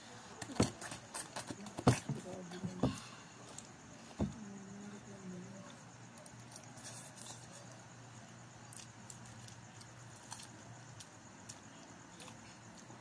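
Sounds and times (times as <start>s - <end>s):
crackers being crunched and chewed: 6.1s - 13.0s.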